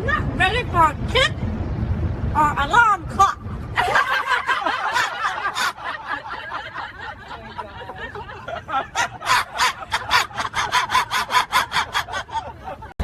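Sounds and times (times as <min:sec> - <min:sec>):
breathy laughter: 0:03.8 - 0:13.0
people chuckling: 0:03.8 - 0:13.0.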